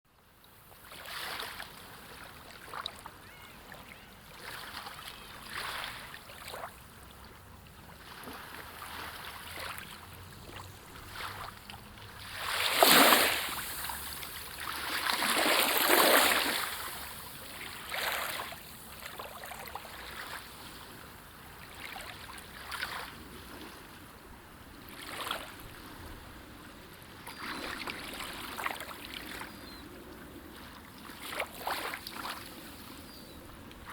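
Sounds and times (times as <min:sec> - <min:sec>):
sea waves washing in: 0:07.8 - 0:27.0.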